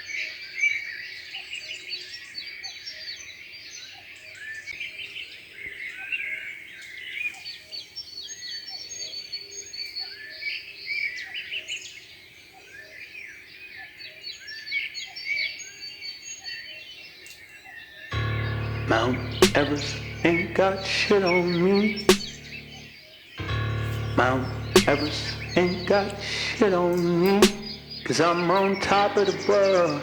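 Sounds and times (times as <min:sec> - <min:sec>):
birds chirping chorus: 0:24.3 - 0:30.0.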